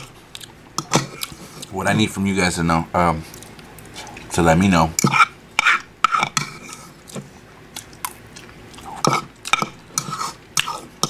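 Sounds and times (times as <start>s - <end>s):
man chewing food: 0.0s - 1.7s, 3.2s - 4.3s, 5.6s - 11.0s.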